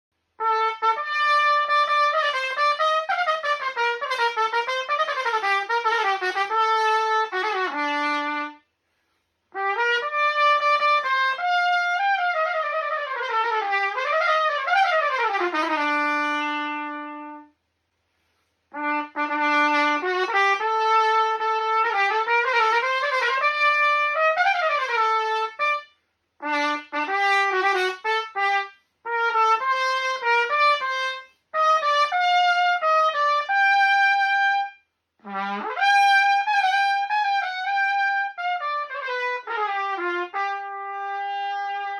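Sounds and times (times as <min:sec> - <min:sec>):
trumpet playing: 0:00.4 - 0:08.7, 0:09.5 - 0:17.6, 0:18.7 - 0:41.9.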